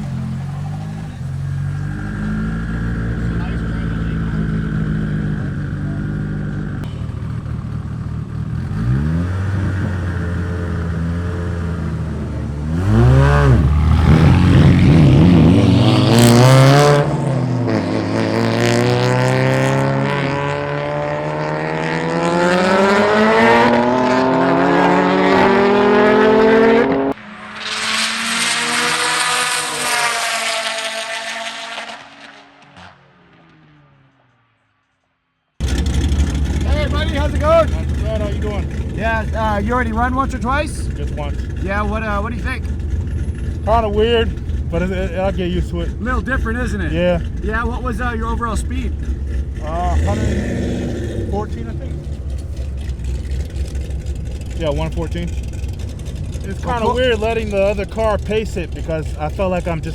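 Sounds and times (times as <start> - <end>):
car engines accelerating: 0.0 - 34.5, 35.6 - 59.9.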